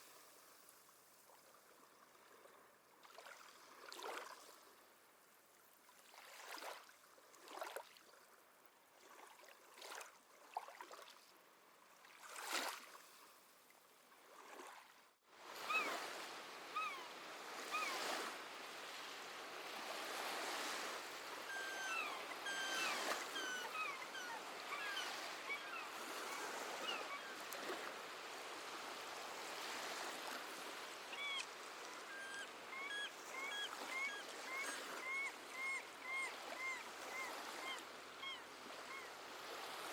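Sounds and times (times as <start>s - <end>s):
waves washing in: 15.3s - 35.6s
seabird calls: 15.6s - 19.0s, 19.8s - 27.6s, 30.8s - 39.7s.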